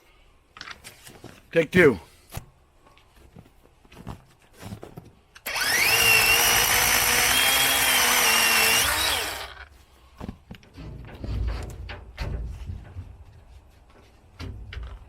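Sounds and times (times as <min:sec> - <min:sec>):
cordless power saw whine: 0:05.4 - 0:09.7.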